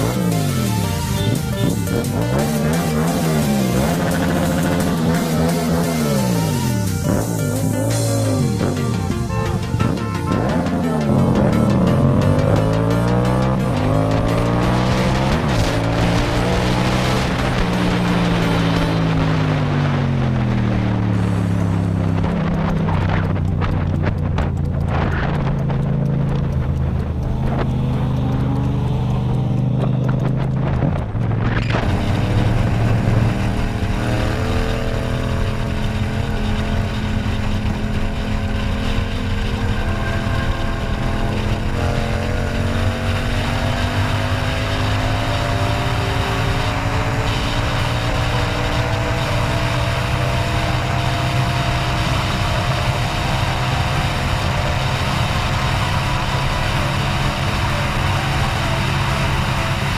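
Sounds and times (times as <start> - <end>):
motorcycle engine: 0.0 - 59.9
heavy wind rush: 13.6 - 56.2.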